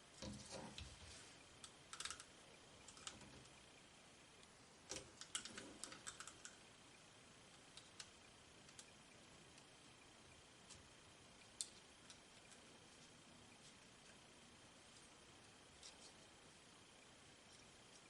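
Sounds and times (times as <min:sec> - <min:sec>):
small plastic parts clicking: 0:01.6 - 0:02.3.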